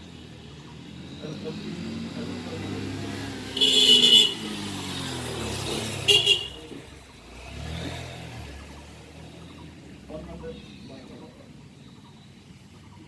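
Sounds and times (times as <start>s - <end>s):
vehicle engine passing: 0.0s - 13.0s
loud shrill horn blasts: 3.6s - 4.4s.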